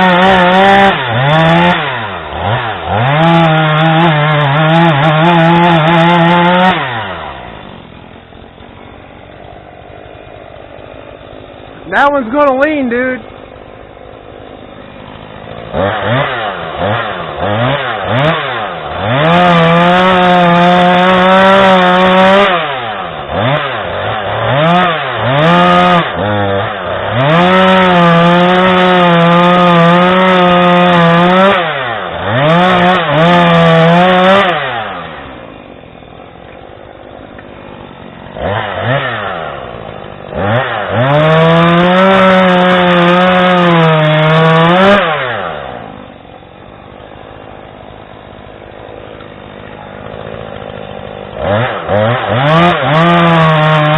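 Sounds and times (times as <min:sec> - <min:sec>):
chainsaw revving and cutting wood: 0:00.0 - 0:53.9.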